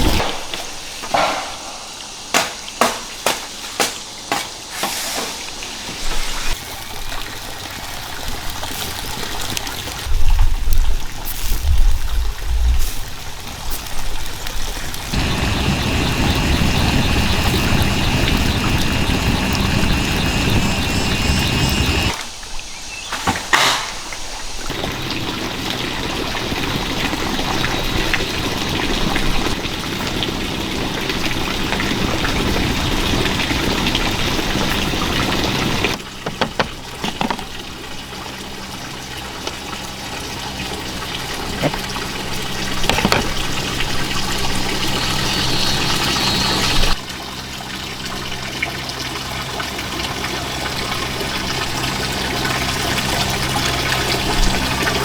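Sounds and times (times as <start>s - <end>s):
running water: 0.0s - 55.0s
short knocks: 0.2s - 5.3s.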